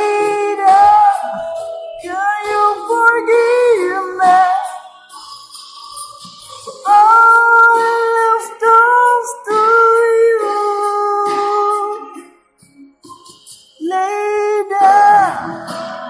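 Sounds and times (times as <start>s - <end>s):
person singing high sustained notes: 0.0s - 5.4s, 13.8s - 16.0s.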